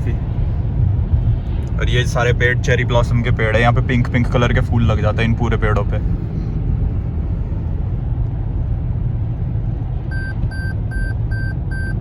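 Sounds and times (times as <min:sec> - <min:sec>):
car road and engine rumble: 0:00.0 - 0:12.0
short beeps: 0:10.1 - 0:12.0.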